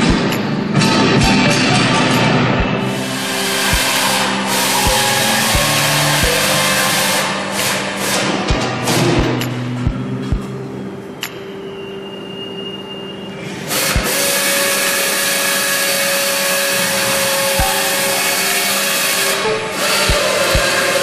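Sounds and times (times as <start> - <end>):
background music: 0.0 - 21.0
loud steady hiss: 2.8 - 9.0, 11.6 - 21.0.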